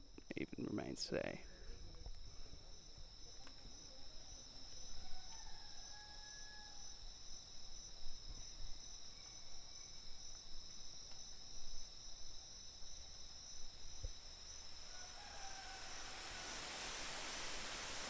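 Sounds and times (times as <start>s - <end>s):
insects droning: 0.0s - 18.0s
faint bird call: 14.9s - 18.0s.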